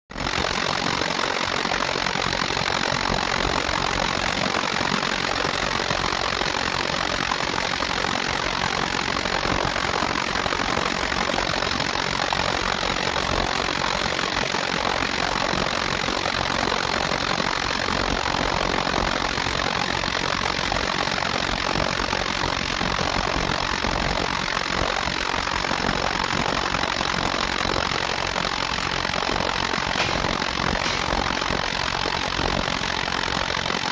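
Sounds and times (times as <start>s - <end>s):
drilling machinery running: 28.8s - 33.0s.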